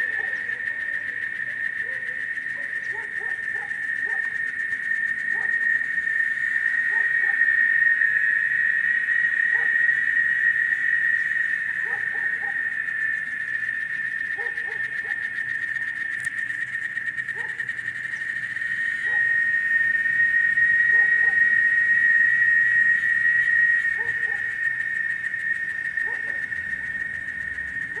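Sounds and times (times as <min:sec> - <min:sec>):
low hoot-like animal calls: 0:00.0 - 0:16.0, 0:17.2 - 0:28.0
cicadas droning: 0:00.0 - 0:28.0.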